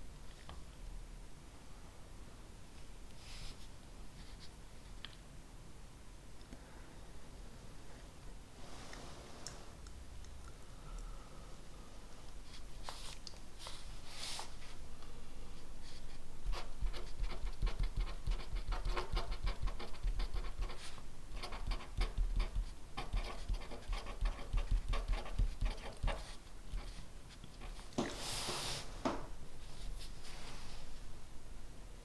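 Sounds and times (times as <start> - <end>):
pen writing on paper: 16.5 - 27.0.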